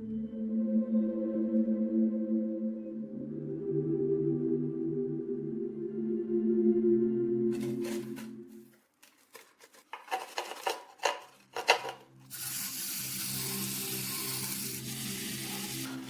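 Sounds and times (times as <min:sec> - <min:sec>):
quiet background music: 0:00.0 - 0:16.0
metallic clicks and scrapes: 0:07.5 - 0:12.7
abrasive hissing on metal: 0:12.3 - 0:16.0.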